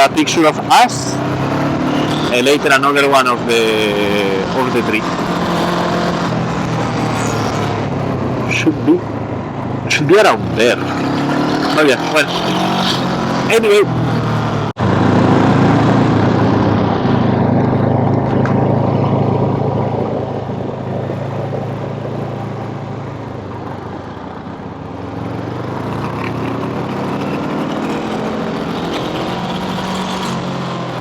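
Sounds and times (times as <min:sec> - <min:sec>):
motor scooter engine running: 0:12.5 - 0:31.0.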